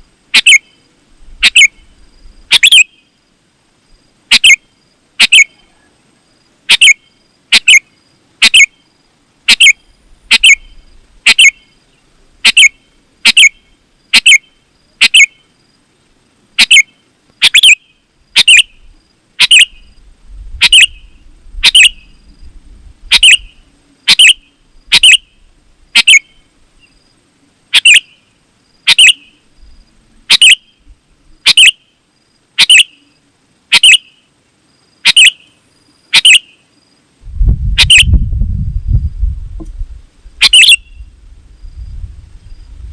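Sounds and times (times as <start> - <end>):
bulbul short sharp calls: 1.4 - 1.9, 2.5 - 3.0, 4.3 - 5.9, 6.7 - 8.8, 9.5 - 11.7, 12.4 - 15.5, 16.6 - 18.8, 19.4 - 19.9, 20.6 - 22.1, 23.1 - 25.4, 26.0 - 26.4, 27.7 - 28.2, 28.8 - 29.4, 30.3 - 30.8, 31.5 - 32.0, 32.6 - 34.3, 35.0 - 36.6, 37.8 - 38.1, 40.4 - 41.1.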